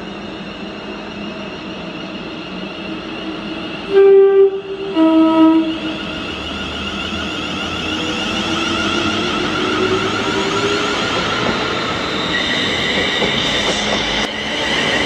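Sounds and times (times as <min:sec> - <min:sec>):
train running noise: 0:00.0 - 0:15.0
two-note train horn: 0:03.9 - 0:05.9.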